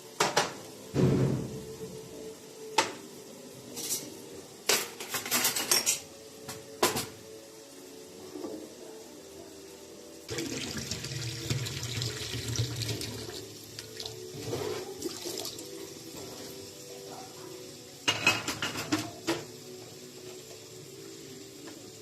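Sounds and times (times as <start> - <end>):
dishes clattering: 4.7 - 6.1, 18.0 - 19.5
tap water running into sink: 10.3 - 15.8.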